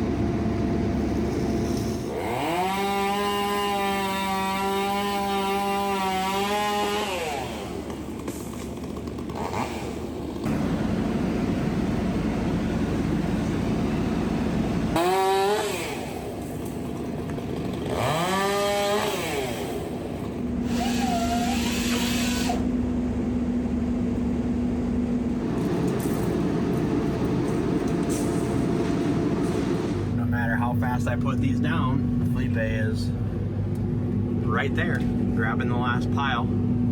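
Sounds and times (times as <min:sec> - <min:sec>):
chainsaw revving and cutting: 0:02.0 - 0:22.7.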